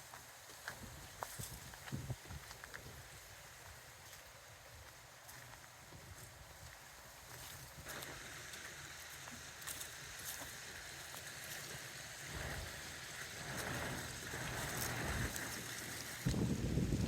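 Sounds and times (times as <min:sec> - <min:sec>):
steady hiss: 0:00.0 - 0:17.0
gusty wind buffeting microphone: 0:00.8 - 0:03.3, 0:12.1 - 0:17.0.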